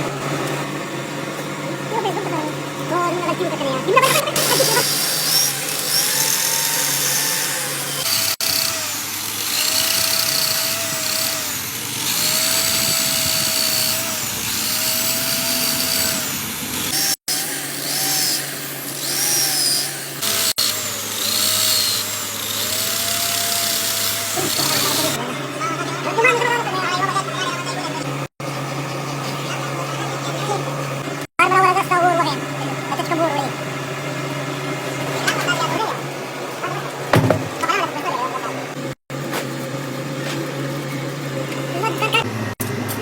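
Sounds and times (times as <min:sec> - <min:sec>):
power tool motor whine: 0:04.0 - 0:25.2
grinding noise: 0:04.1 - 0:25.2.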